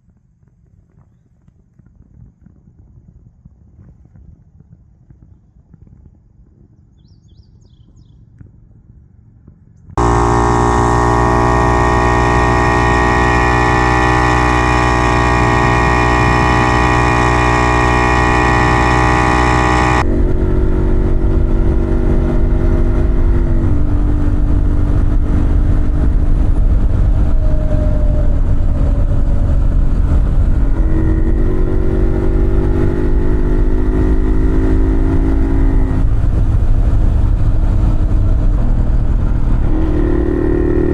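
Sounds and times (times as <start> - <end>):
two-stroke motorcycle engine running: 10.0 - 40.9.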